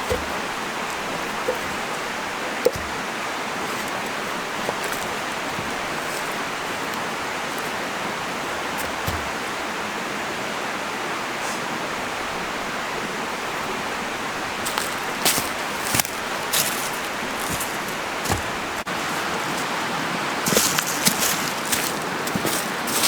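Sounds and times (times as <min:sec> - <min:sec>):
faint knocks and clicks: 0:00.0 - 0:09.5.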